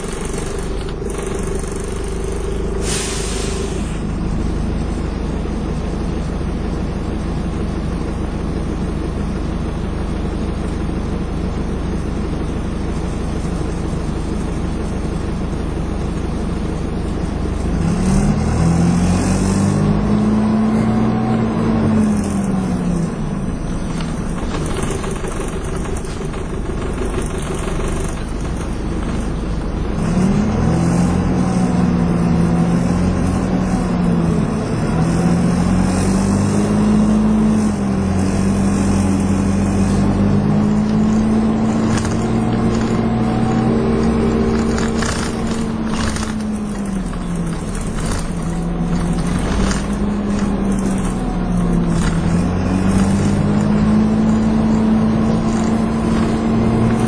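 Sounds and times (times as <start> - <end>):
knocks and rattles: 0.0 - 2.8, 23.7 - 30.2, 40.6 - 57.0
bus engine running: 0.0 - 57.0.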